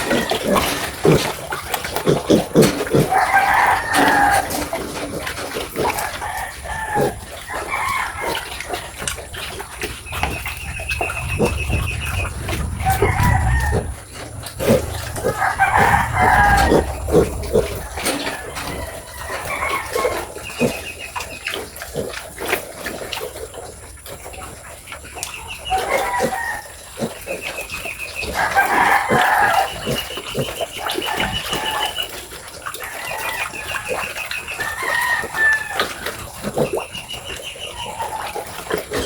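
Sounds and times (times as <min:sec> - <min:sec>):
chickens clucking: 0:00.0 - 0:39.0
rooster crowing: 0:03.1 - 0:04.7, 0:06.0 - 0:08.5, 0:11.3 - 0:20.3, 0:25.7 - 0:26.8, 0:28.4 - 0:29.8, 0:34.6 - 0:36.0.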